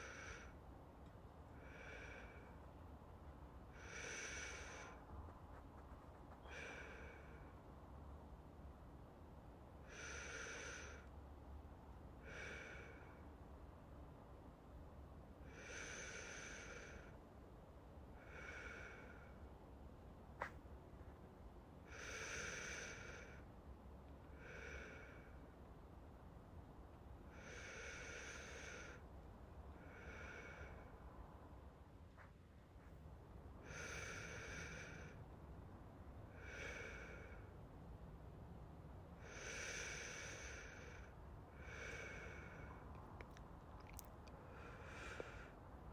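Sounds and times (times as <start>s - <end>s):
man breathing deeply: 0.0s - 0.6s, 1.5s - 2.8s, 3.7s - 5.1s, 6.4s - 7.9s, 9.8s - 11.1s, 12.2s - 13.5s, 15.4s - 17.2s, 18.2s - 19.6s, 21.8s - 23.5s, 24.2s - 25.5s, 27.3s - 29.1s, 29.8s - 31.4s, 33.6s - 35.4s, 36.3s - 37.7s, 39.2s - 45.9s.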